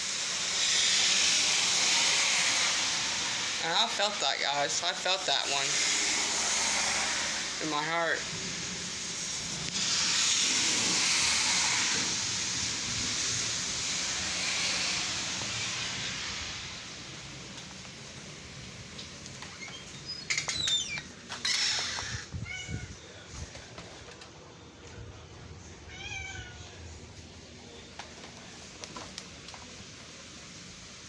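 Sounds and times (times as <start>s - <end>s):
short squeaky sounds: 19.5s - 22.8s.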